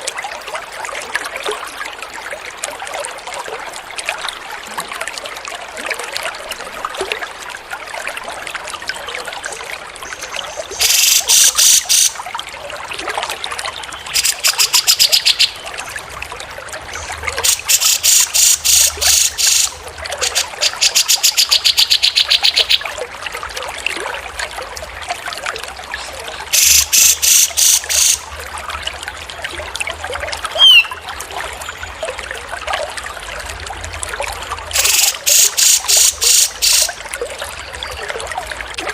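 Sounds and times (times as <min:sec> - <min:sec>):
water trickling: 0:00.0 - 0:38.9
songbird trills: 0:30.6 - 0:31.0.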